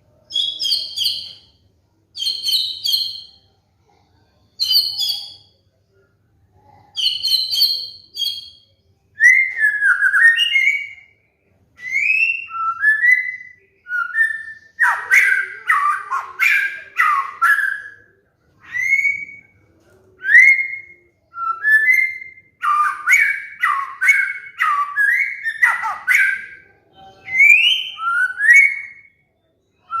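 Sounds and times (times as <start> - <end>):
bird singing whistled phrases: 7.0 - 11.1, 11.8 - 19.6, 20.2 - 29.2, 29.8 - 30.0.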